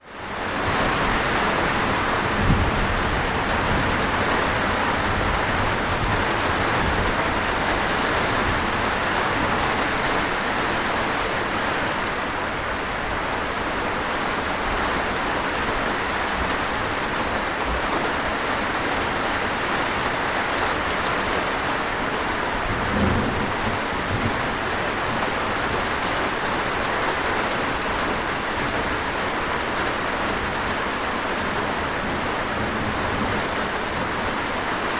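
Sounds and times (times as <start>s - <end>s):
steady rain falling: 0.0s - 34.9s
low thunder rumbles: 0.6s - 8.6s, 22.5s - 26.0s.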